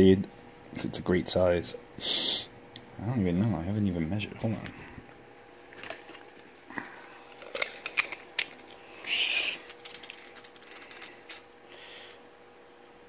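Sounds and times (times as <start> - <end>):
objects clicking and knocking: 9.4 - 11.4.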